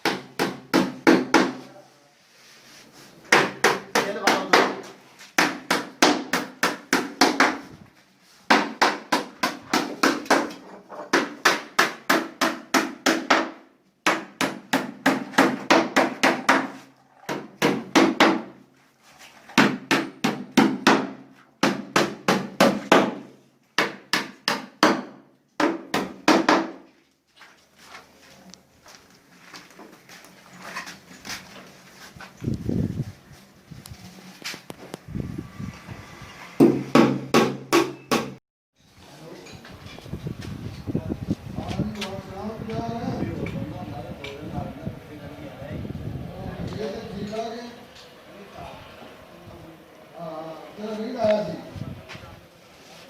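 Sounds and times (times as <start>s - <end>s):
hammer striking wood: 0.0s - 1.6s, 3.3s - 7.7s, 8.5s - 18.6s, 19.6s - 26.9s, 36.6s - 38.4s.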